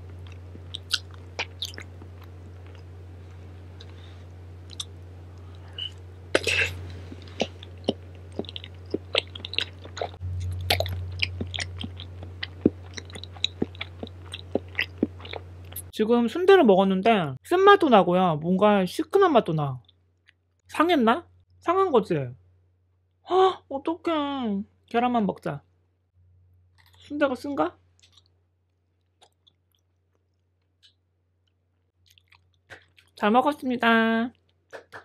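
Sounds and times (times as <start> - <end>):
wet mouth chewing: 0.0 - 3.0, 4.6 - 15.9, 28.0 - 33.2
steady low hum: 0.0 - 18.5.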